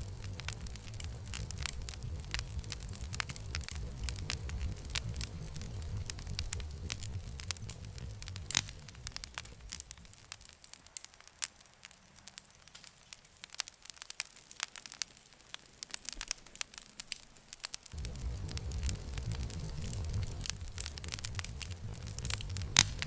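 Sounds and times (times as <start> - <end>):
low rumble: 0.0 - 10.5, 17.9 - 23.0
campfire crackling and popping: 0.0 - 23.0.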